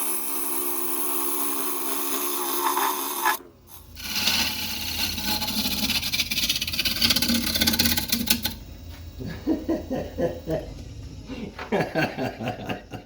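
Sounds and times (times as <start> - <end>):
tool scraping wood on lathe: 0.0 - 8.6.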